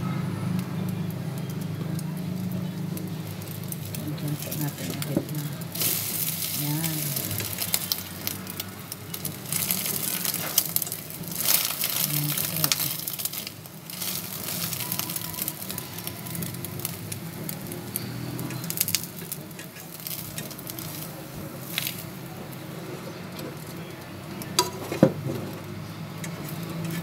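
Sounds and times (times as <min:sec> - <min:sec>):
bread sizzling in hot oil: 0:00.0 - 0:27.0
fork scraping a pan: 0:26.2 - 0:27.0.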